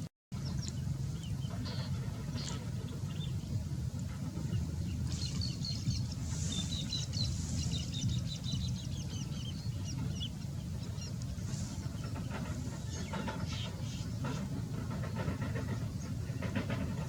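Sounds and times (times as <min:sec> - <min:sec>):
low rumble: 0:00.4 - 0:17.0.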